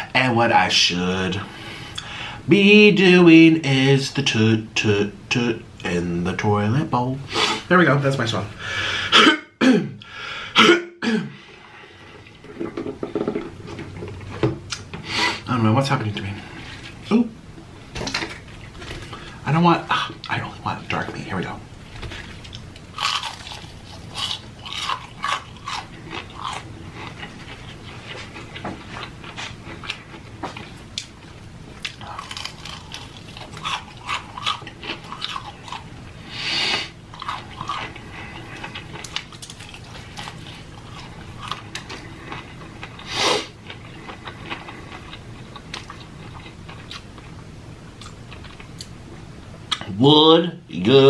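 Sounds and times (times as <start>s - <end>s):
person chewing crispy chicken: 21.9s - 31.1s, 31.7s - 36.2s, 36.8s - 47.4s.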